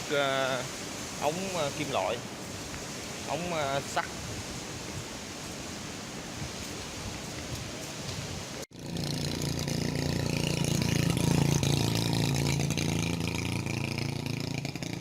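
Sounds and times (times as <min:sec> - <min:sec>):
motorbike engine running: 0:08.7 - 0:15.0.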